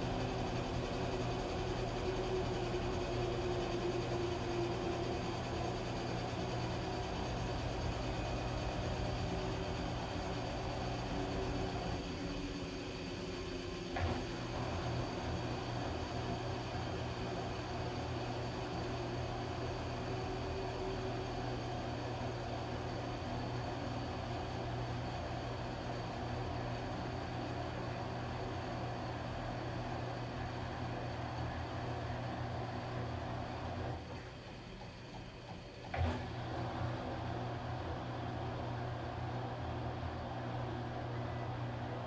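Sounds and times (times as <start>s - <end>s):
washing machine motor hum: 0.0s - 42.0s.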